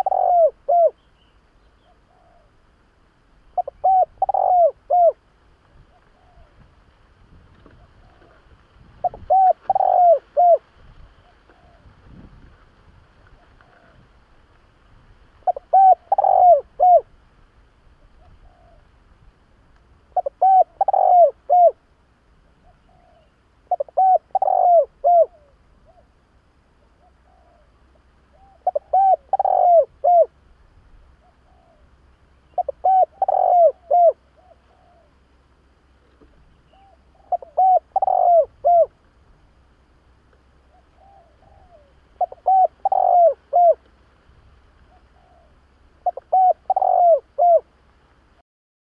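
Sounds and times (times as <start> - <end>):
dove cooing: 0.0 - 1.1, 1.8 - 2.6, 3.5 - 5.2, 5.8 - 6.7, 7.5 - 12.2, 13.3 - 14.2, 15.4 - 17.2, 18.0 - 19.0, 20.1 - 21.8, 22.5 - 26.2, 26.8 - 30.4, 31.1 - 35.3, 36.0 - 39.0, 40.6 - 43.9, 44.7 - 47.8.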